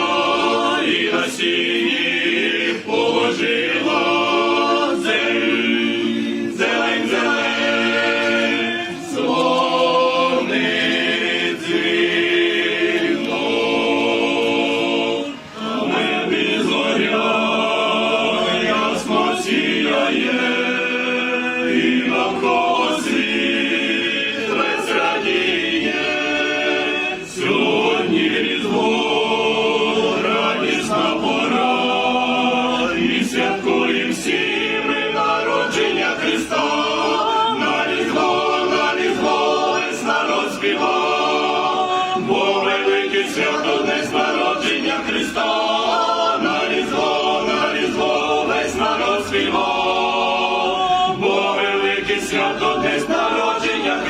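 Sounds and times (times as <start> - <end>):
choir singing carol: 0.0 - 54.0.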